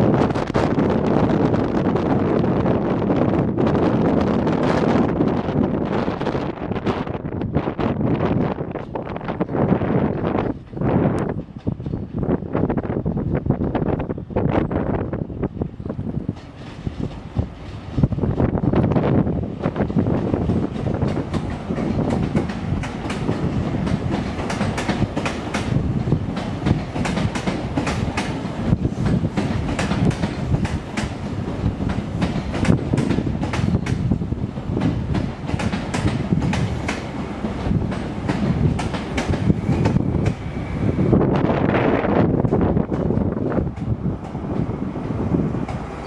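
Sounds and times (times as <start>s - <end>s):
diesel train engine rumble: 7.3s - 46.0s
wheels clicking over rail joints: 19.7s - 34.1s, 34.8s - 40.4s.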